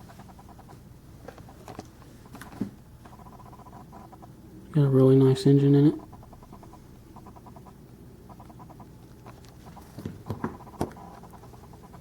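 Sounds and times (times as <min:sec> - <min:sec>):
faint rapid ticking: 0:03.0 - 0:12.0.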